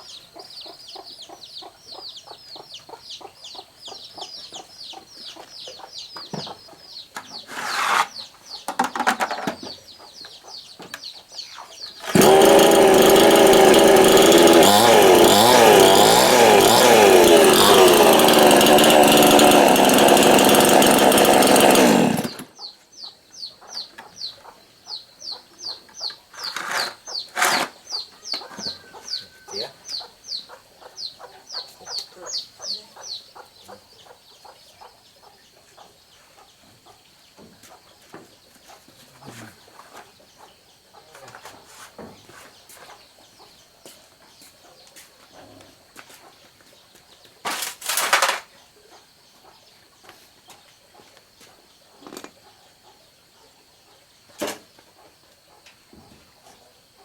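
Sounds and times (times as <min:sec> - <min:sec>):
chainsaw engine revving: 0:07.5 - 0:08.1, 0:12.0 - 0:22.5, 0:26.4 - 0:27.8, 0:47.5 - 0:48.5
short rasping noises: 0:07.5 - 0:08.2, 0:12.0 - 0:22.4.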